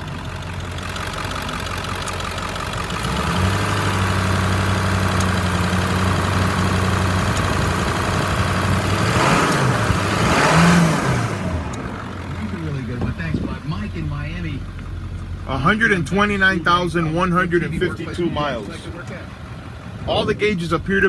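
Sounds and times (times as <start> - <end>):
diesel engine idling and revving: 0.0 - 21.0.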